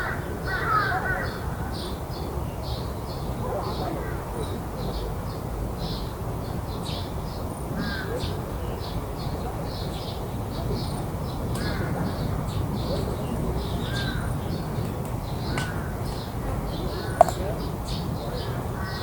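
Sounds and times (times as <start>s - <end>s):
crows cawing: 0.0s - 1.4s, 18.8s - 19.0s.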